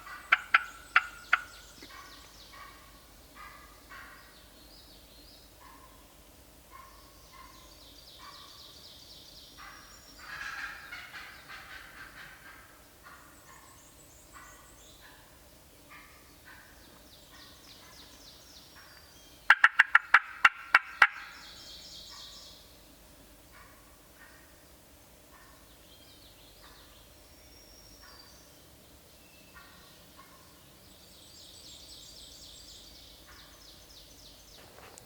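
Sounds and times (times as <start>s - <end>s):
turkeys clucking and yelping: 0.0s - 4.2s, 5.6s - 6.0s, 6.7s - 7.6s, 9.6s - 13.8s, 14.4s - 17.9s, 18.7s - 21.5s, 23.5s - 24.5s, 29.5s - 30.6s
small birds chirping: 0.0s - 12.2s, 12.8s - 22.8s, 24.2s - 35.0s.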